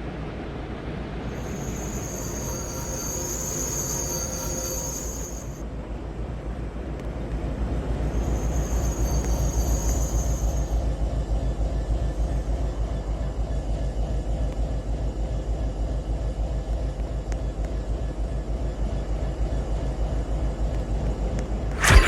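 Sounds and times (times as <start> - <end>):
train rumbling past: 1.0 - 6.1, 7.4 - 13.2.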